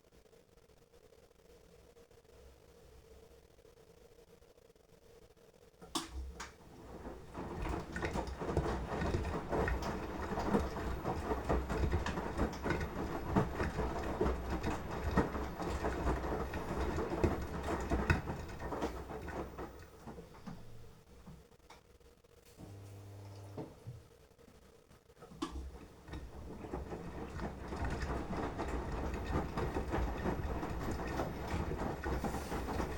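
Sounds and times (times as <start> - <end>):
washing machine drum turning: 5.9 - 21.0, 25.3 - 32.9
laundry tumbling: 6.2 - 21.2, 25.3 - 32.9
water sloshing: 6.7 - 20.9.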